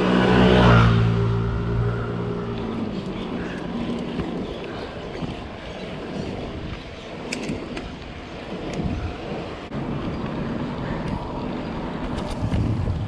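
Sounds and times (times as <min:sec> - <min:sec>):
motor vehicle engine running: 0:00.0 - 0:07.1
wind buffeting microphone: 0:00.0 - 0:13.0.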